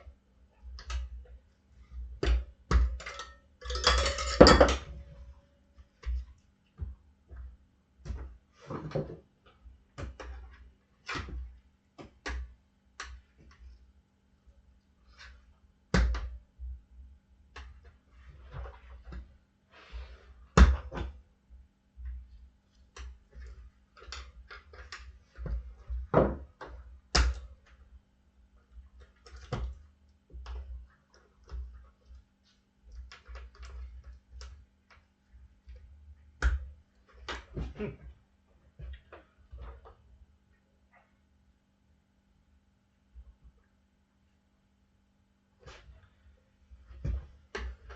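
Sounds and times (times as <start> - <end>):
thuds and scrapes: 37.2 - 38.2.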